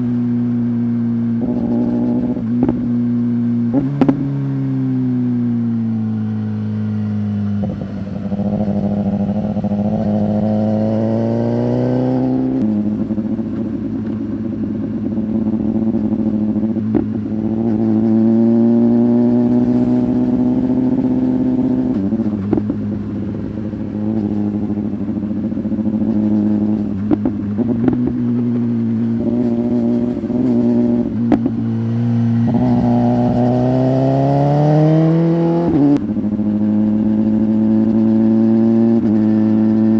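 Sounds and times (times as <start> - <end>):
motorcycle engine accelerating: 0.0 - 39.9
sharp exhaust pops: 1.4 - 4.4, 12.5 - 18.6, 19.4 - 34.6.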